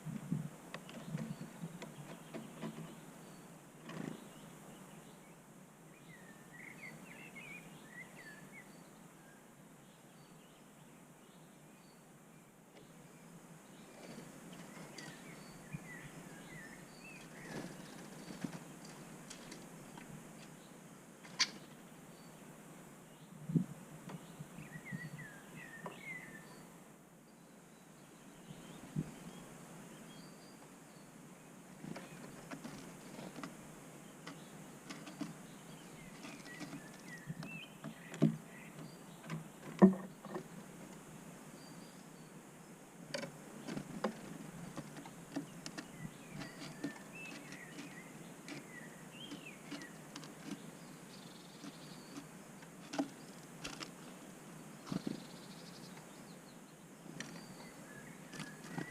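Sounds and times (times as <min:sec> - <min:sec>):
small birds chirping: 0:00.0 - 0:58.9
faint high bird chirps: 0:24.1 - 0:31.2, 0:54.8 - 0:58.9
birds pecking on table: 0:34.2 - 0:38.4, 0:43.1 - 0:50.8, 0:51.4 - 0:55.3.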